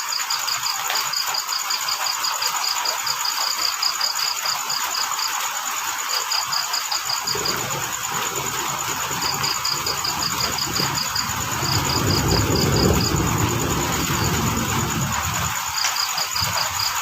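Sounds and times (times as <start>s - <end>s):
crickets chirping: 0.0s - 17.0s
high insect trill: 0.0s - 17.0s
rain hissing: 4.2s - 17.0s
low rumble: 7.3s - 15.5s.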